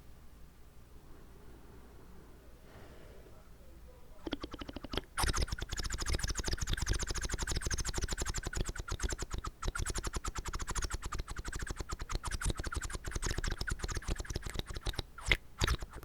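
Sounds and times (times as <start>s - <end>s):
wet mouth smacking clicks: 4.2s - 16.0s.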